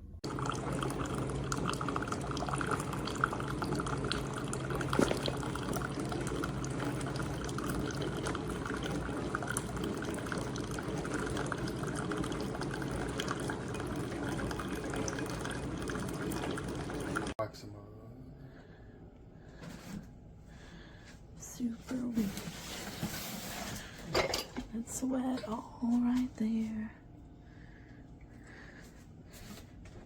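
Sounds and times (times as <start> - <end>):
liquid pouring into cup: 0.2 - 17.4
faint low hum: 17.4 - 30.0.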